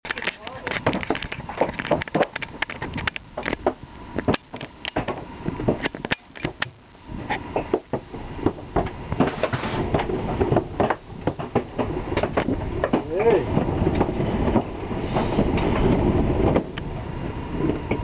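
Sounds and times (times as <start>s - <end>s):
hailstones clattering on vehicle: 7.7s - 16.9s.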